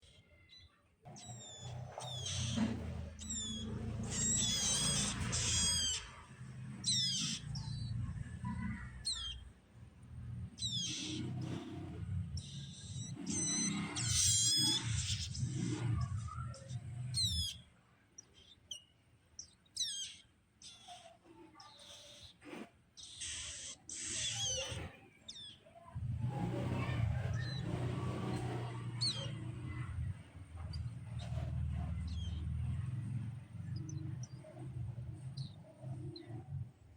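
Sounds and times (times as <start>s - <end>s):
nestlings chirping: 0.0s - 36.7s.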